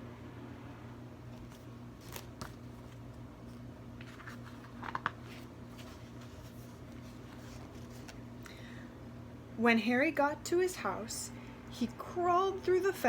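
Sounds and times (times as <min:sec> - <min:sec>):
steady low hum: 0:00.0 - 0:13.0
paper page turning: 0:01.3 - 0:08.2.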